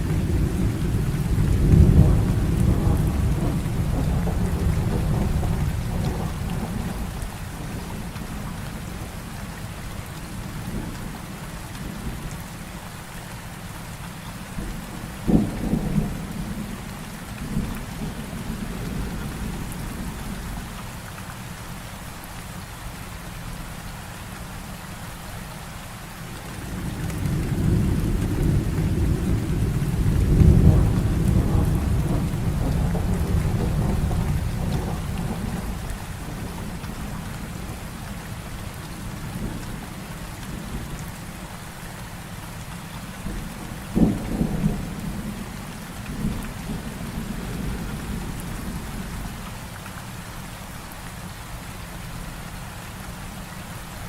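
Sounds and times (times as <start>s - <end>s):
rolling rumble of thunder: 0.0s - 9.2s, 14.6s - 20.7s, 26.3s - 41.2s, 43.2s - 49.5s
heavy rain falling: 0.0s - 54.0s.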